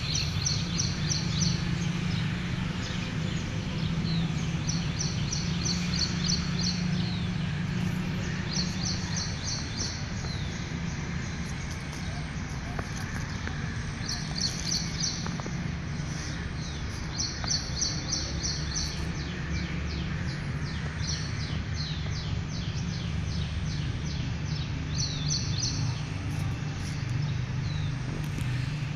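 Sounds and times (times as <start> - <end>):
bird chirping: 0.0 - 28.7.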